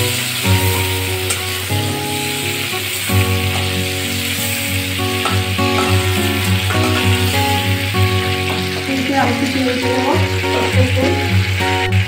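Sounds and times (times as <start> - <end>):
background music with held notes: 0.0 - 12.0
prawns sizzling in oil: 0.0 - 12.0
spatula moving through pan: 1.0 - 9.7.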